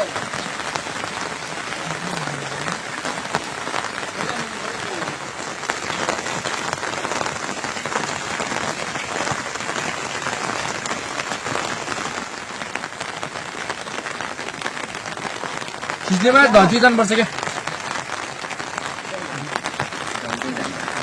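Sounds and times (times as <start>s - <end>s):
rain falling steadily: 0.0s - 21.0s.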